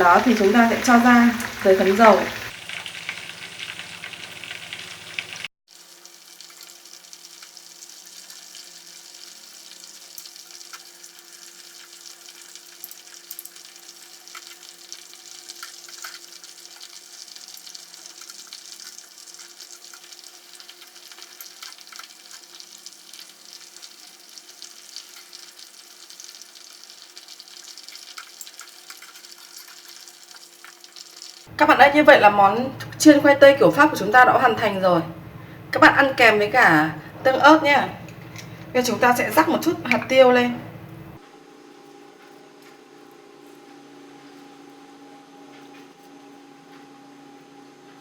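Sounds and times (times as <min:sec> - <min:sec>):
potatoes sizzling in hot oil: 0:00.0 - 0:34.7.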